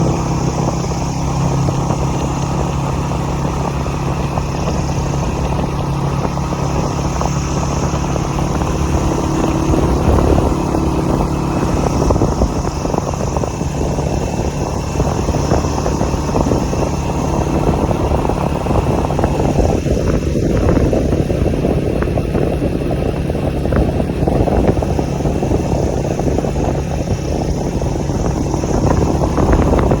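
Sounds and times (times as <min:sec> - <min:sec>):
motorcycle engine running steadily: 0:00.0 - 0:30.0.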